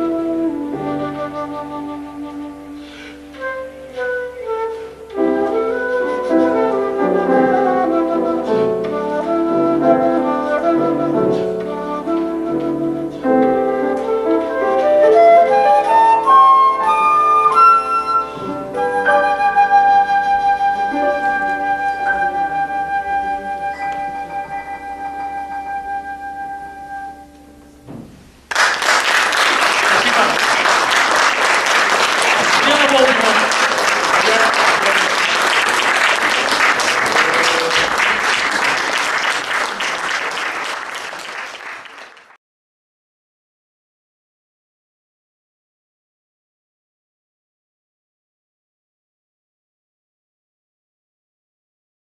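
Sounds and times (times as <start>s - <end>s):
flute melody: 0.0s - 27.8s
piano chords: 0.0s - 28.5s
audience applauding: 28.5s - 42.4s.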